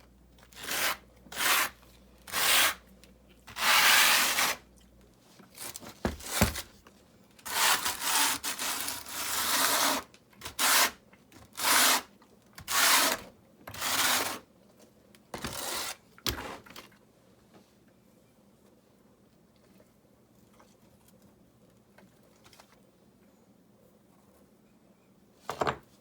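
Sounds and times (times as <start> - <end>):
tool scraping mortar: 0.6 - 2.8, 3.5 - 4.6, 7.4 - 11.0, 11.6 - 14.4, 15.4 - 16.0.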